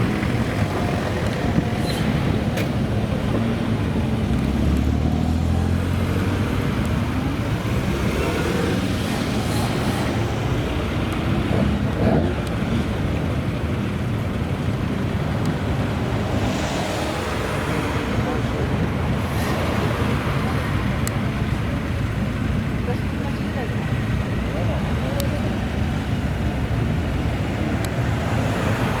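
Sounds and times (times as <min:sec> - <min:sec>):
road noise: 0:00.0 - 0:29.0.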